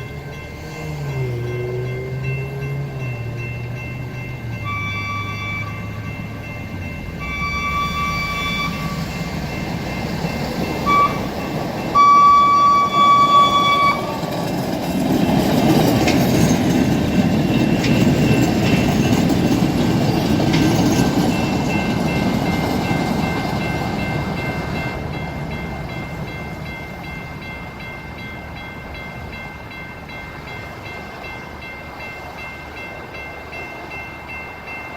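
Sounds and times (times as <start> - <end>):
train rumbling on rails: 0.0 - 34.9
train horn blasts: 4.6 - 5.9, 7.2 - 9.0, 10.8 - 11.3, 12.0 - 14.2.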